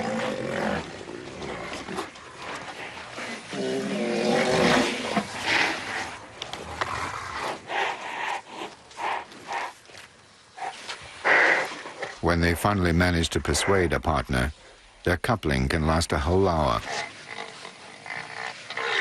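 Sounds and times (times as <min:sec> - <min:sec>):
drawn-out animal call: 0:16.9 - 0:19.0.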